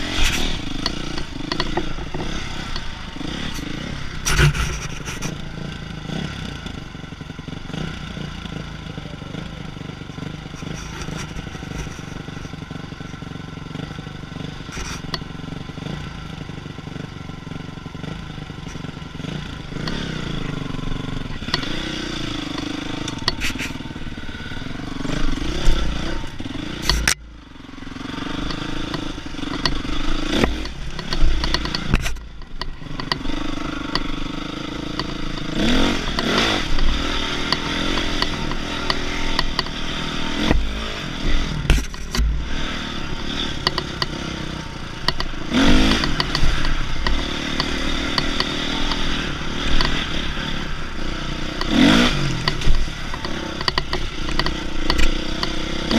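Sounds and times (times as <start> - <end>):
dirt bike engine revving: 0.0 - 55.9
bike clattering over rough ground: 28.2 - 34.2, 34.8 - 50.9.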